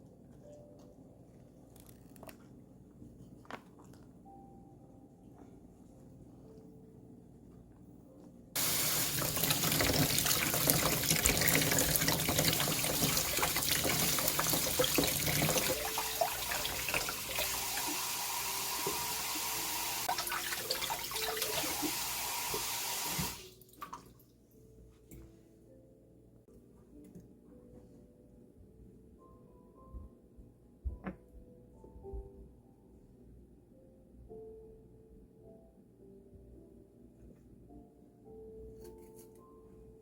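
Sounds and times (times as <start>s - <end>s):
water running from a tap: 8.6s - 24.0s.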